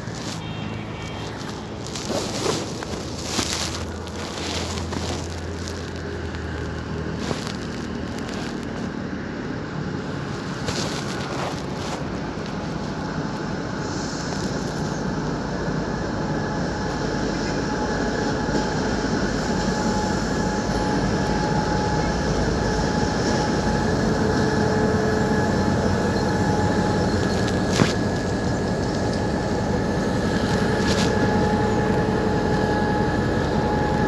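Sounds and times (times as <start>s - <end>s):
train rumbling on rails: 0.0s - 34.0s
wheel squeal: 16.8s - 34.0s.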